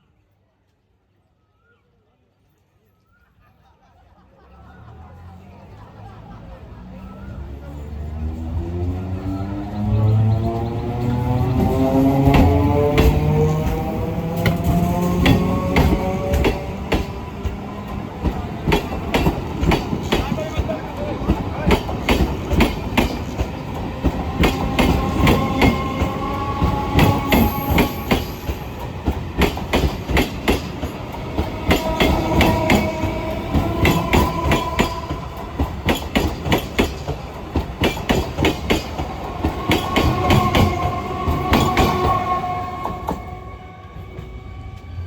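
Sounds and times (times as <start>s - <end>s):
wheels clattering over rail joints: 10.5s - 42.3s.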